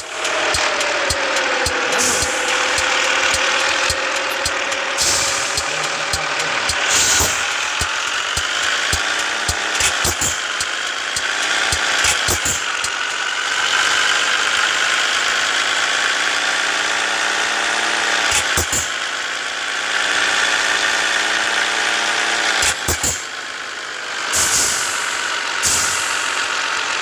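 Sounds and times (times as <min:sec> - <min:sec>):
sharp clicks: 0:00.0 - 0:13.2, 0:22.6 - 0:23.3
truck diesel engine running: 0:00.0 - 0:27.0.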